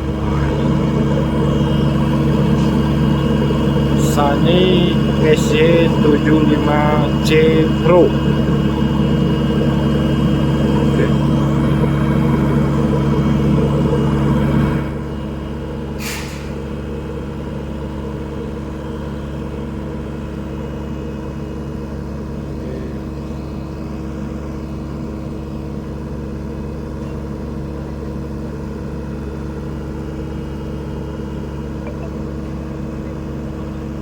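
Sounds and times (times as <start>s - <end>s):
excavator diesel engine running: 0.0s - 34.0s
short hiss: 16.0s - 16.6s.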